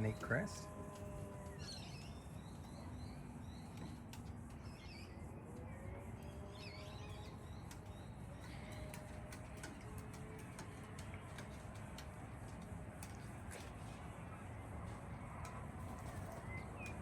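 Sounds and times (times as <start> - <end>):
faint high bird chirps: 0.0 - 11.4
outdoor background noise: 0.0 - 17.0
small clicks: 6.9 - 13.8.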